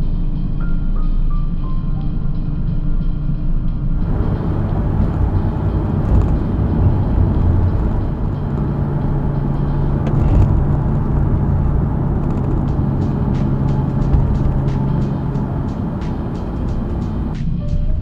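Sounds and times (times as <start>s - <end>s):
car engine cruising: 4.0s - 17.4s
road and tyre noise: 4.0s - 17.4s.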